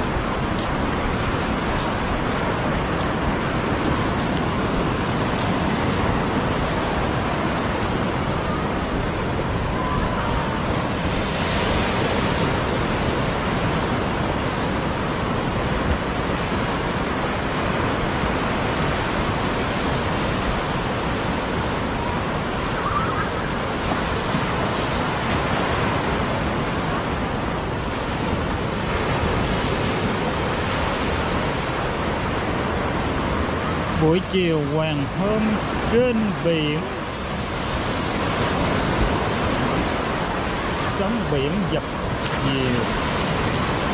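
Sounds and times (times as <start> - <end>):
sea waves breaking on beach: 0.0 - 43.9
wind on microphone: 0.0 - 43.9.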